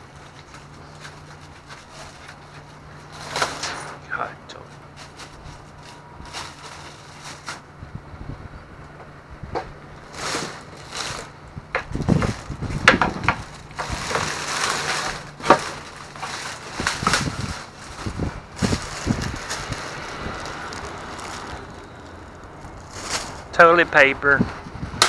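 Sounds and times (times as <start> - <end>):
packaging crinkling: 4.7 - 7.7, 10.0 - 23.6.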